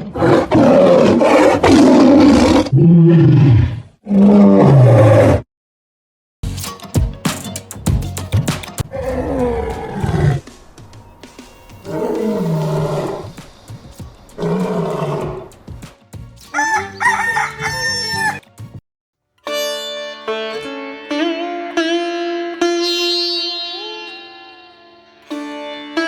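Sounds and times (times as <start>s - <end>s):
rooster crowing: 16.5s - 18.4s.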